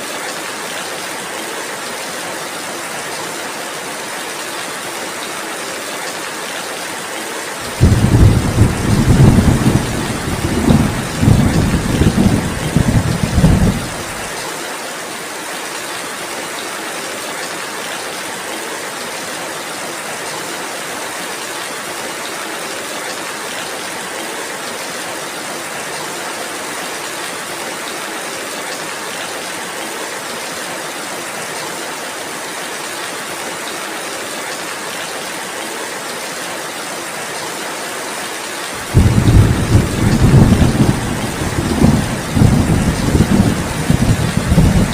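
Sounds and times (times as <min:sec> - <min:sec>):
steady rainfall hiss: 0:00.0 - 0:44.9
rolling thunder rumble: 0:07.7 - 0:14.3, 0:38.8 - 0:44.9.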